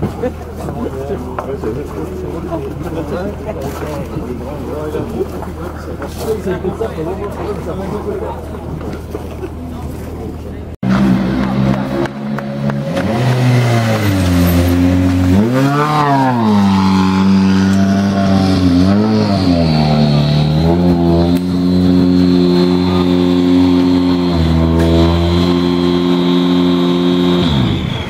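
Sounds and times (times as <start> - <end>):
rally car engine revving: 10.8 - 28.0.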